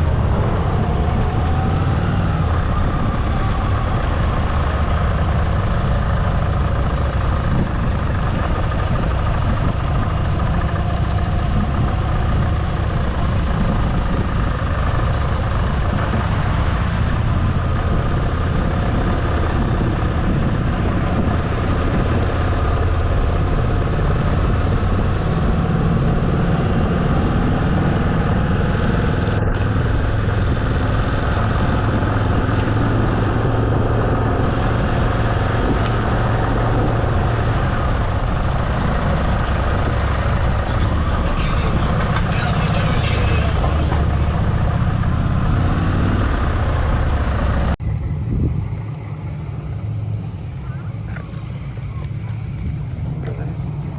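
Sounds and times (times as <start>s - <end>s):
continuous rushing noise: 0.0s - 53.9s
motorcycle engine running: 0.0s - 53.9s.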